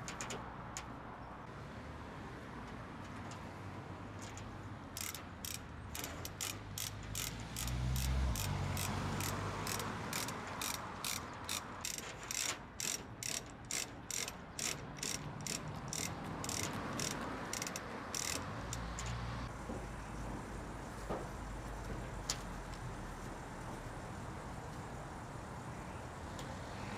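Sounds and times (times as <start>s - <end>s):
ratchet clicking: 0.0s - 0.9s, 4.2s - 19.4s.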